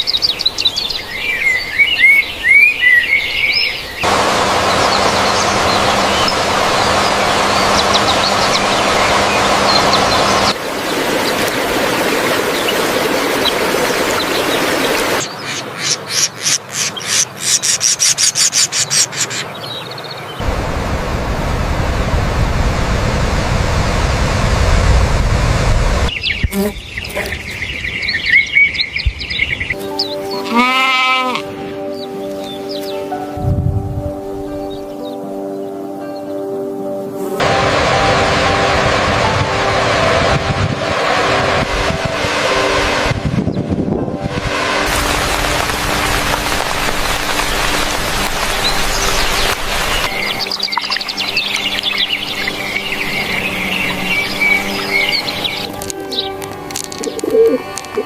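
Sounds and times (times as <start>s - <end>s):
birds chirping: 0.0s - 20.4s, 26.1s - 33.3s, 44.9s - 58.0s
steady noise: 4.0s - 15.2s, 20.4s - 26.1s, 37.4s - 55.8s.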